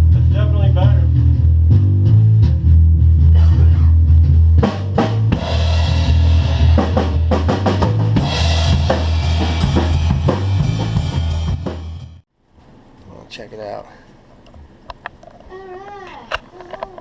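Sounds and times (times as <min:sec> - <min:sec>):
bass guitar playing bass line: 0:00.0 - 0:12.2
cymbals: 0:05.3 - 0:12.2.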